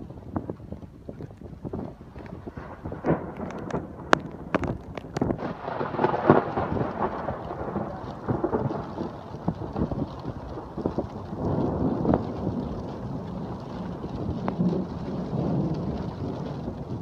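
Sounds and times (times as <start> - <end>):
rain falling: 0.0 - 17.0
sharp taps of raindrops: 0.0 - 17.0
thunder rumbling: 0.0 - 17.0.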